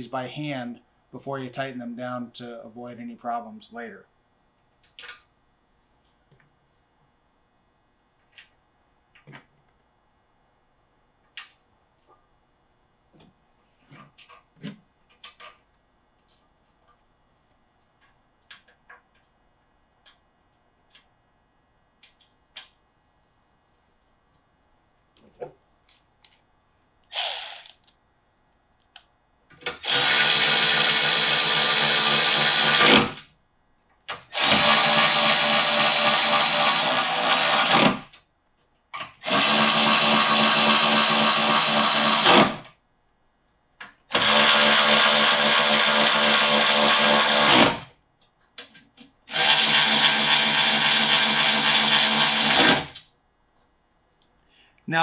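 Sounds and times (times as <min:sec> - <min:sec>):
power drill running: 0:27.1 - 0:27.8, 0:29.8 - 0:33.2, 0:34.3 - 0:38.0, 0:39.2 - 0:42.6, 0:44.1 - 0:47.8, 0:49.3 - 0:52.9.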